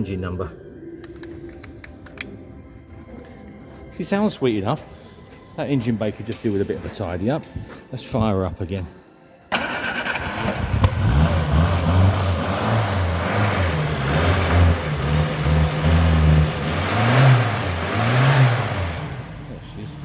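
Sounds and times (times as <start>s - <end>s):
car engine revving: 9.5s - 20.0s.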